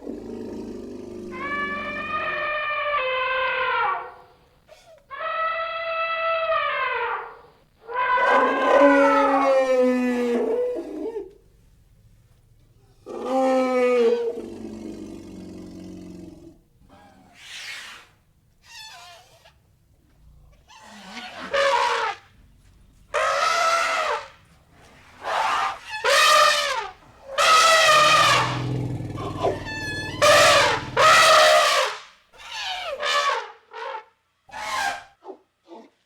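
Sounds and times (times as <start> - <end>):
elephant trumpeting: 1.2 - 10.7, 18.6 - 19.6, 20.6 - 22.2, 23.0 - 24.4, 25.2 - 35.2.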